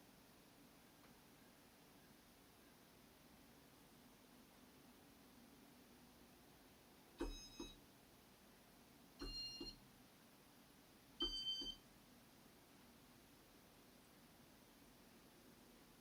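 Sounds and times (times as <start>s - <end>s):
short electronic beep: 7.2s - 7.8s, 11.2s - 11.8s.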